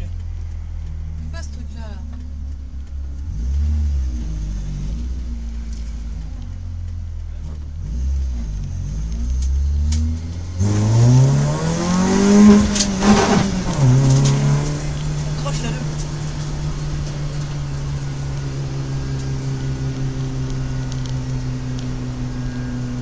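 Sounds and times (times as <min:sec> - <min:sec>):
race car engine accelerating: 0:00.0 - 0:23.0
tyre and road noise: 0:00.0 - 0:23.0.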